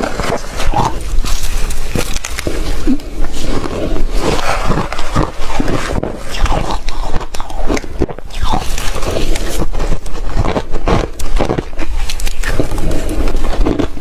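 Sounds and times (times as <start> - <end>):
person chewing ice crunching: 0.0 - 14.0.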